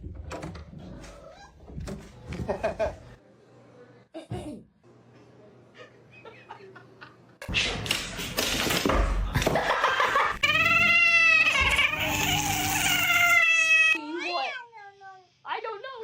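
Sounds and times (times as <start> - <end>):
people laughing: 2.4 - 3.2, 5.7 - 7.5, 9.2 - 10.5
cat meowing: 10.4 - 14.0.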